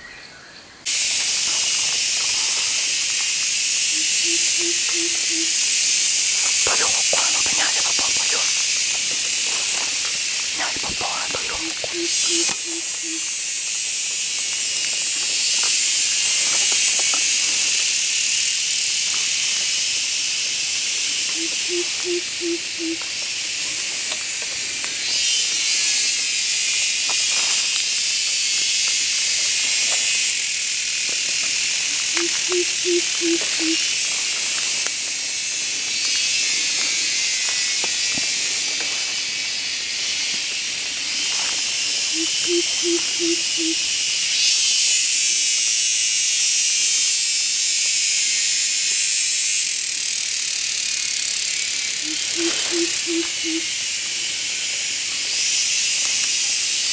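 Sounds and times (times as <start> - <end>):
insects buzzing: 0.0 - 56.9
low hooting call: 4.1 - 5.8, 9.6 - 13.4, 21.4 - 23.0, 32.2 - 33.9, 42.2 - 43.8, 52.0 - 53.7.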